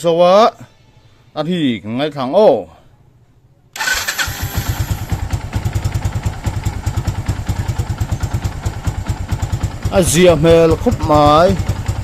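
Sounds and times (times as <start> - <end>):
motorcycle engine idling: 3.8 - 12.0.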